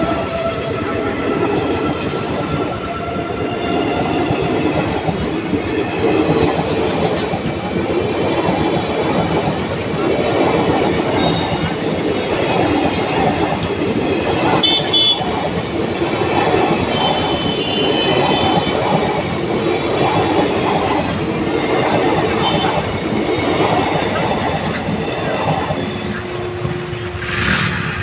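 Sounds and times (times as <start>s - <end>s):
train wheels rumbling and clattering: 0.0s - 28.0s.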